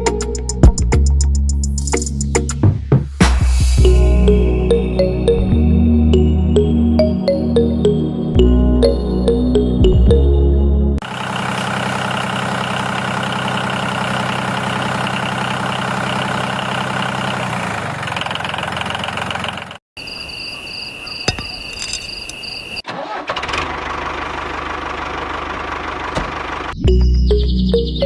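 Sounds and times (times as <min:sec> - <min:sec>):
model diesel engine running: 0:11.0 - 0:19.8, 0:22.9 - 0:27.0.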